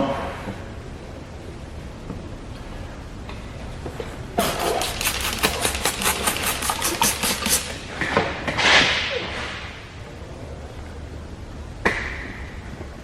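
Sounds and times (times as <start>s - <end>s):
squeegee scraping film: 4.4s - 8.0s.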